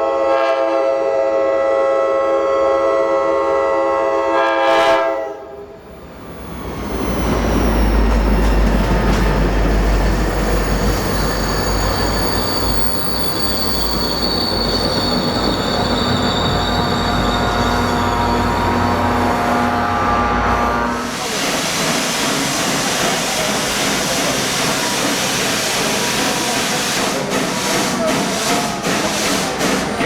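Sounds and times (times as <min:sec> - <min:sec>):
train horn chord: 0:00.0 - 0:05.6, 0:17.6 - 0:21.2
train rumbling by: 0:01.4 - 0:30.0
high-pitched wheel squeal: 0:10.1 - 0:20.6.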